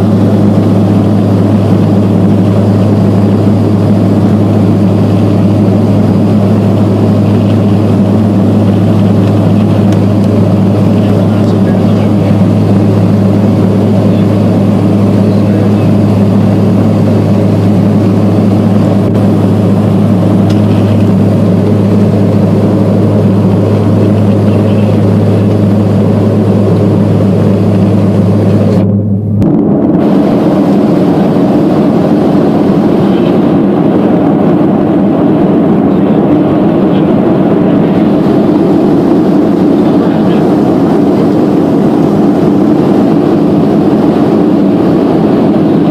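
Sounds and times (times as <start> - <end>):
turboprop engine drone in cabin: 0.0 - 45.9.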